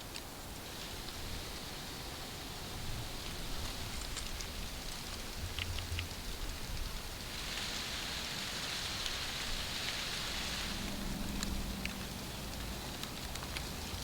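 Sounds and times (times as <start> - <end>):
faint low hum: 9.6 - 14.0.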